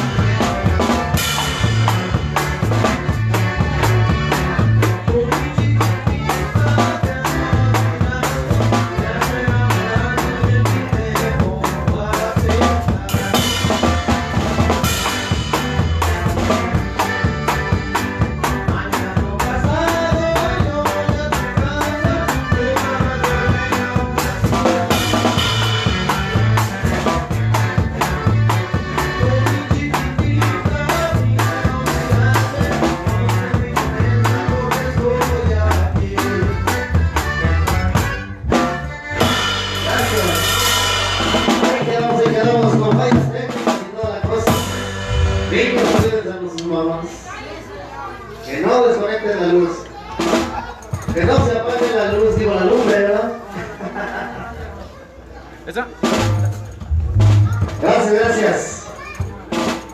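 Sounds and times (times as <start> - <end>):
bouncing bass line: 0.0 - 43.2, 56.0 - 58.4
drum kit steady beat: 0.0 - 46.6, 50.2 - 52.9, 55.7 - 59.9.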